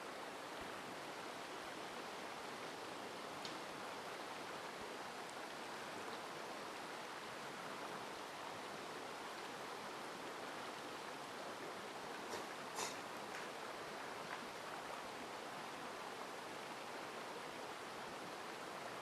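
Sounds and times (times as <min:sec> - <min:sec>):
stream water rushing: 0:00.0 - 0:19.0
faint click: 0:03.4 - 0:03.6.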